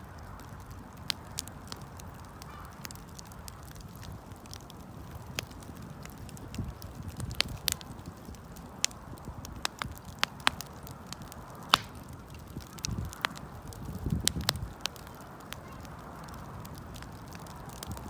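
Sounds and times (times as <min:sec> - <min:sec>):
wood campfire crackling: 0:00.0 - 0:18.0.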